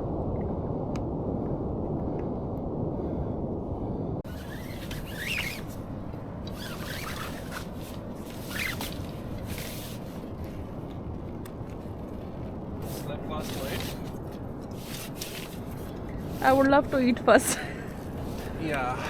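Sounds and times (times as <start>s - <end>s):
wind and sea rushing: 0.0s - 19.0s
rustling scrapes: 4.3s - 5.9s, 6.5s - 10.3s, 12.8s - 17.1s, 18.1s - 18.7s.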